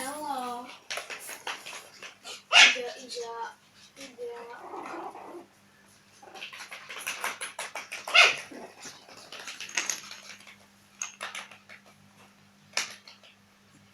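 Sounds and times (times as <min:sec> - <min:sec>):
puppies scuffling: 0:00.0 - 0:04.5
puppies yipping: 0:02.5 - 0:02.9, 0:07.9 - 0:08.6.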